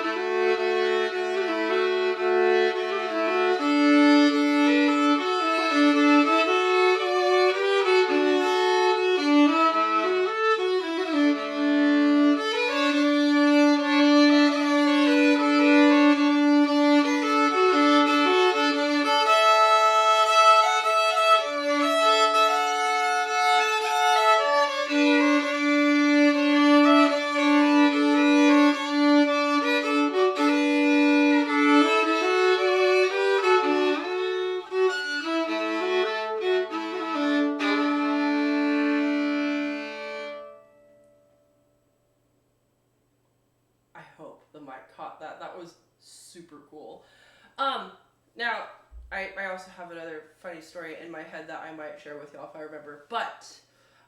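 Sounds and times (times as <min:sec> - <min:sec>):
solo violin fiddle tune: 0:00.0 - 0:41.4.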